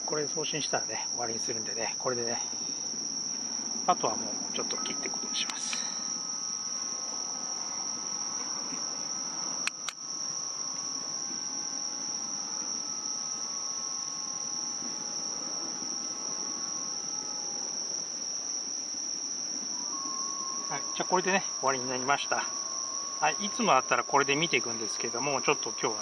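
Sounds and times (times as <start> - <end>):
crickets trilling: 0.0 - 26.0
sharp clicks: 9.6 - 10.0.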